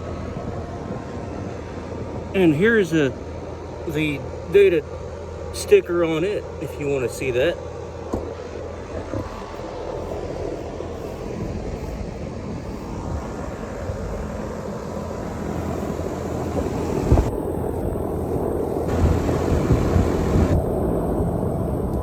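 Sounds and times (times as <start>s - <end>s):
fan air rushing: 0.0s - 22.0s
low hum: 0.0s - 22.0s.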